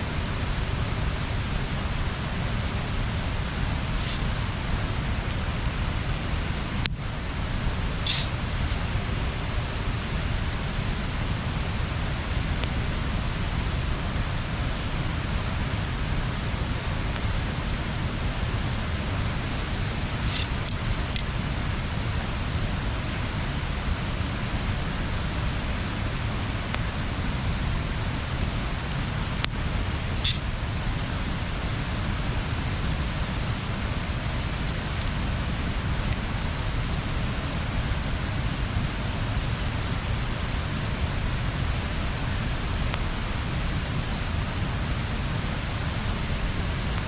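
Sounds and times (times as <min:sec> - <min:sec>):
bonfire rushing: 0:00.0 - 0:47.0
fire crackling pops: 0:00.1 - 0:47.0.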